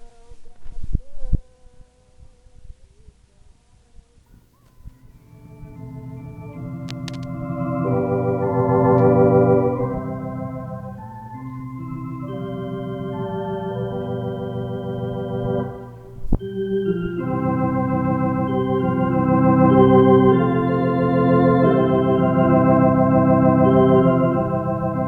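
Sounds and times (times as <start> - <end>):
electric organ chords: 5.1 - 25.0.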